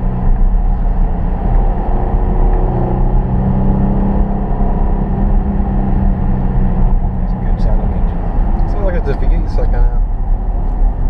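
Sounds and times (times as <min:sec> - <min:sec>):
car engine droning while driving: 0:00.0 - 0:11.0.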